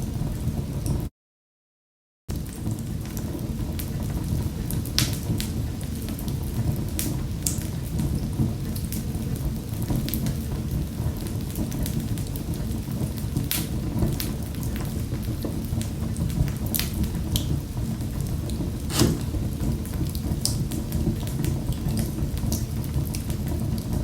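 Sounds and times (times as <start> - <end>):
wood fire crackling and popping: 18.9 - 23.6.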